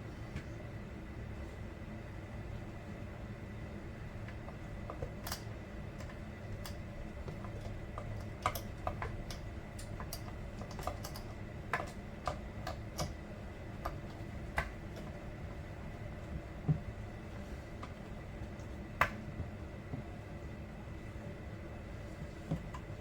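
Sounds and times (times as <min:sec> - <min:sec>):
light clicks and taps: 0:04.2 - 0:13.2.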